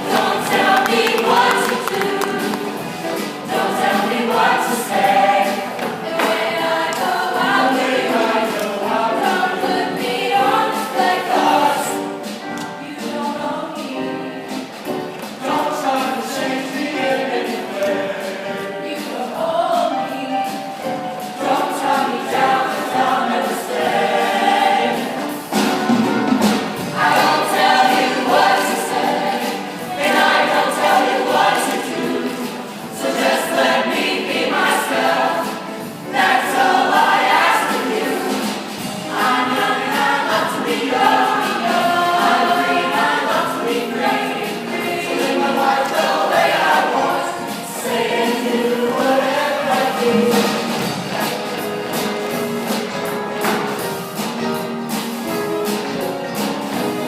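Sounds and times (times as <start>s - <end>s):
choir singing: 0.0s - 54.6s.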